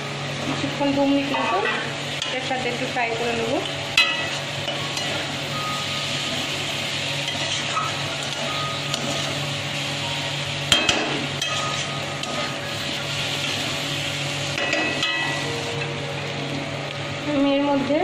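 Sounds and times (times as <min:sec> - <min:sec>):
food sizzling in a pan: 0:00.0 - 0:18.0
metal spatula scraping pan: 0:10.8 - 0:12.7.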